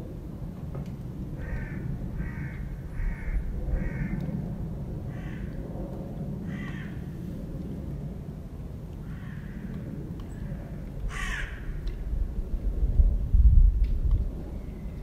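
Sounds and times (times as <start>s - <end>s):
bird cawing: 1.4s - 4.2s, 5.1s - 5.6s, 6.5s - 7.0s, 9.0s - 9.8s, 11.1s - 11.8s.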